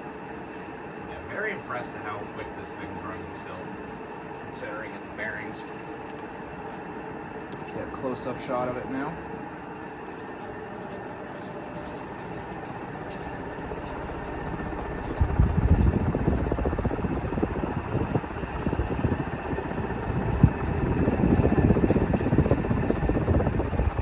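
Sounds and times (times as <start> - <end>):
ceiling fan humming and whooshing: 0.0 - 24.0
wind buffeting microphone: 13.3 - 24.0.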